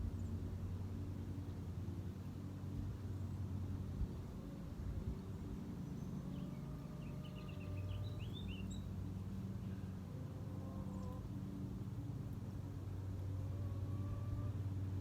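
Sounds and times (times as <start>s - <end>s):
small birds chirping: 5.7s - 9.7s.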